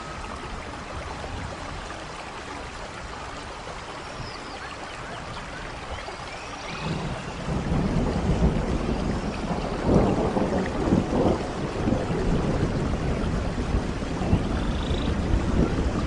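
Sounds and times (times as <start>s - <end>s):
rain falling: 0.0s - 16.0s
thunder rumbling: 6.7s - 16.0s.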